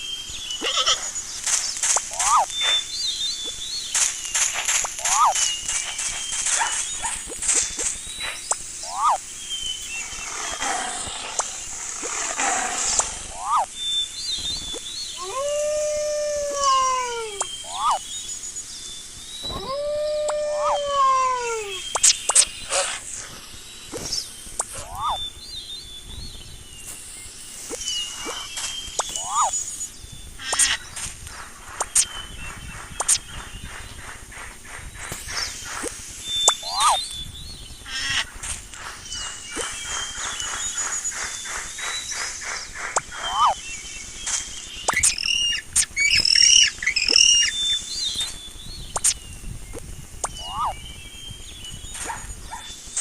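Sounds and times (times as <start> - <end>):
steady hiss: 0.0 - 53.0
animal chirps: 0.3 - 1.2, 1.8 - 18.4, 19.4 - 23.3, 23.9 - 25.4, 27.7 - 31.1, 31.8 - 33.8, 35.3 - 37.2, 39.0 - 51.0
animal squeaks: 0.6 - 1.1, 2.1 - 2.8, 5.0 - 5.5, 8.8 - 9.2, 13.3 - 13.7, 15.2 - 18.0, 19.4 - 23.0, 24.7 - 25.2, 28.2 - 29.6, 36.5 - 37.0, 43.2 - 43.6, 50.3 - 50.8.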